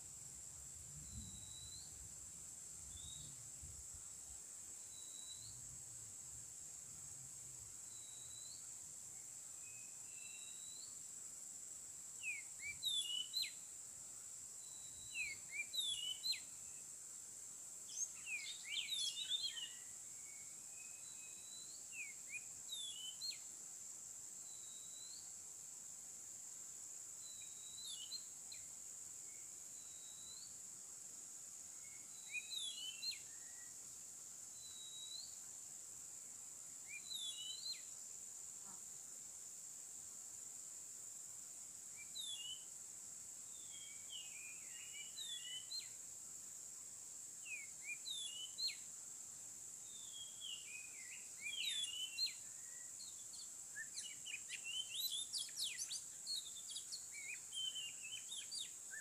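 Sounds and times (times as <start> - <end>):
high insect drone: 0.0 - 59.0
bird singing whistles and chirps: 1.0 - 2.0, 2.9 - 3.4, 4.9 - 5.6, 7.9 - 8.7, 9.6 - 11.0, 12.2 - 13.6, 14.6 - 16.8, 17.9 - 23.4, 27.2 - 28.7, 29.3 - 30.6, 31.8 - 33.8, 34.6 - 35.4, 36.8 - 37.9, 41.9 - 42.7, 43.5 - 46.0, 47.4 - 48.9, 49.9 - 59.0.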